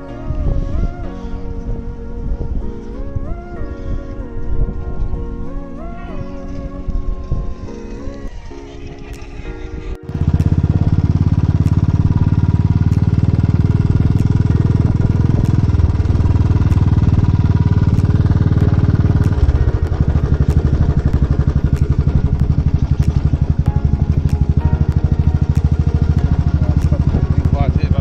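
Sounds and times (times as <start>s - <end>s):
single-cylinder engine running: 10.1s - 28.0s.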